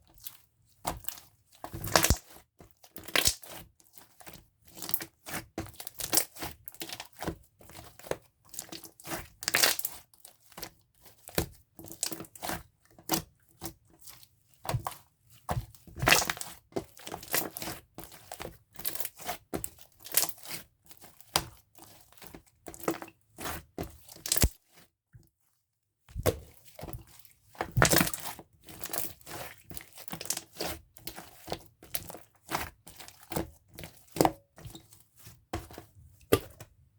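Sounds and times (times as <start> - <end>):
slime squishing with sticky pops: 1.8 - 2.4, 24.2 - 24.6, 26.1 - 33.4.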